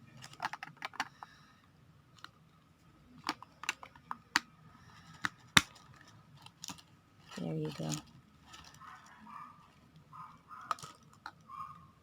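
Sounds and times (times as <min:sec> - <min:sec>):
plastic toy parts clicking: 0:00.2 - 0:01.2, 0:03.2 - 0:06.9, 0:10.7 - 0:11.5.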